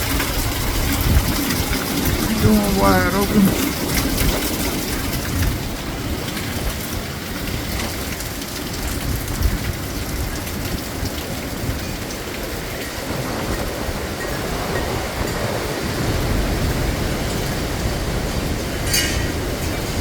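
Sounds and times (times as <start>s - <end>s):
heavy rain hissing: 0.0s - 10.0s
gusting storm wind: 0.0s - 20.0s.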